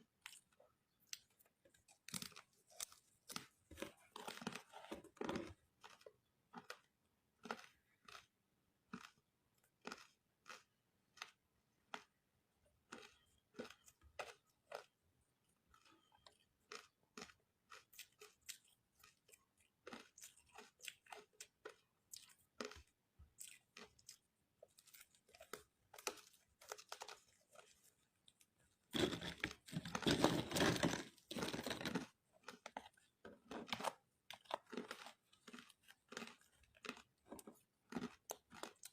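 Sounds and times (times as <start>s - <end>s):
ice crunching while chewed: 0.0s - 38.9s.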